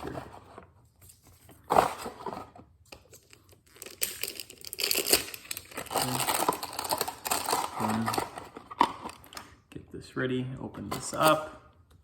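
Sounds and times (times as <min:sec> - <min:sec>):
packaging ripping and crinkling: 0:03.0 - 0:09.4.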